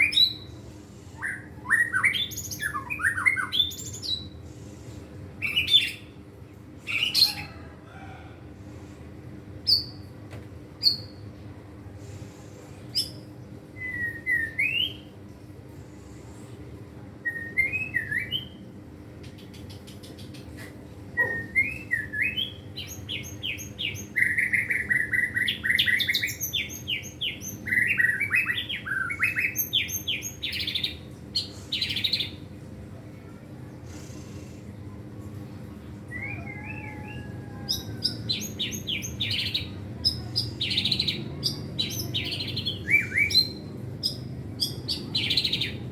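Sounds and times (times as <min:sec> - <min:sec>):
bird singing whistled phrases: 0:13.8 - 0:15.1, 0:17.2 - 0:18.6, 0:41.8 - 0:45.7.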